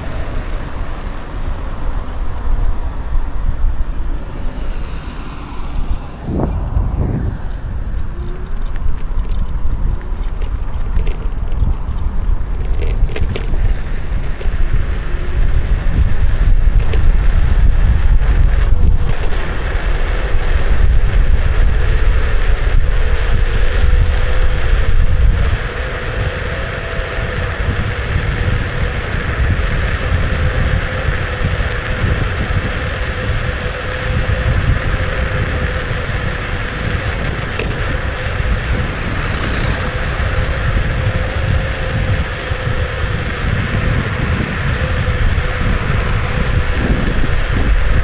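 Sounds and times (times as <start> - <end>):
tyre noise: 0.0 - 16.9, 24.7 - 48.0
wind rumbling on microphone: 0.0 - 48.0
electric motor whine: 25.4 - 48.0.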